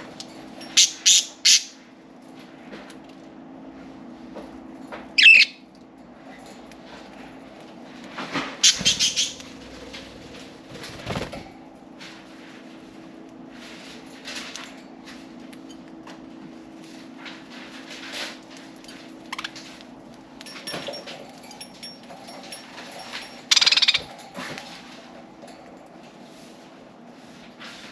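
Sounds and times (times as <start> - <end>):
steady low hum: 0.0 - 27.9
budgie chirp: 23.5 - 24.0.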